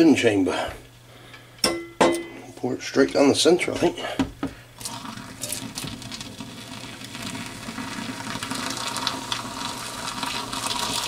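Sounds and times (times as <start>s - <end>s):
water pouring and splashing: 4.8s - 11.0s.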